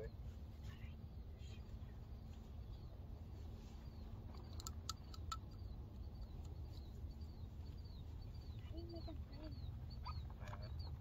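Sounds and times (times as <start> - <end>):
sharp ticks: 4.3 - 6.6.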